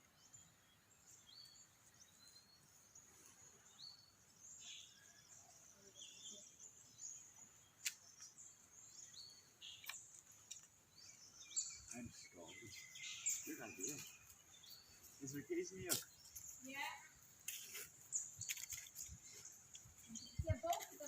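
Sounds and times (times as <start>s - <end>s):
sharp clicks: 9.8s - 10.7s.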